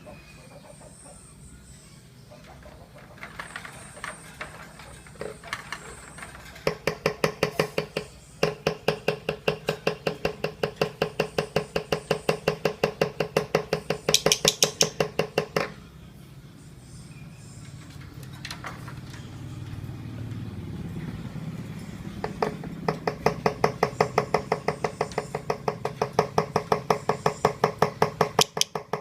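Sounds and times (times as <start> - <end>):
lovebird chirps: 13.7 - 15.1.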